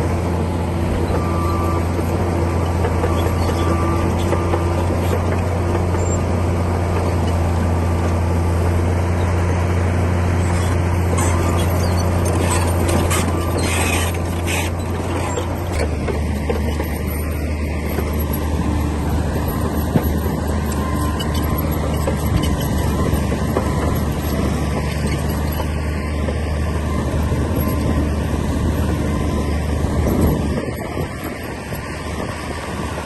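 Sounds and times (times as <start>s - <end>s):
bulldozer diesel engine running: 0.0s - 33.0s.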